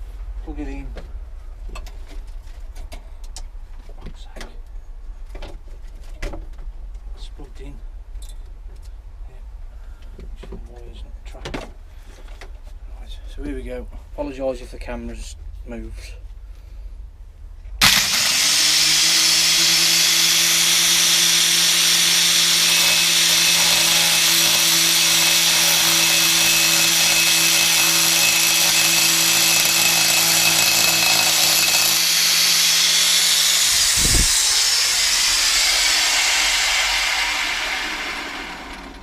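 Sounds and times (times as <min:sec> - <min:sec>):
angle grinder cutting metal: 0:17.8 - 0:39.0
grinder motor hum: 0:17.8 - 0:39.0.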